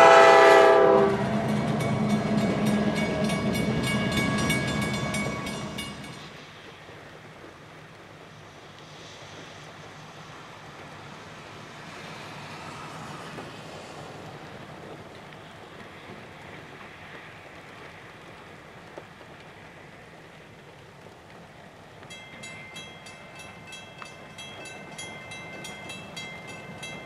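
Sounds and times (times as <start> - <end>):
locomotive engine rumble: 0.0 - 11.8, 21.4 - 27.0
wheels rushing on track: 0.0 - 27.0.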